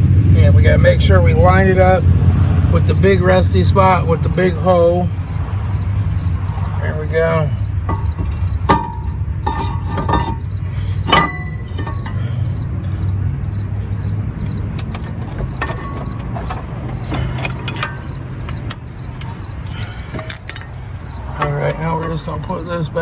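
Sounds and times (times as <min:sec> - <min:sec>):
crickets chirping: 0:00.0 - 0:23.0
steady low hum: 0:00.0 - 0:23.0
metal parts clinking: 0:05.2 - 0:22.9.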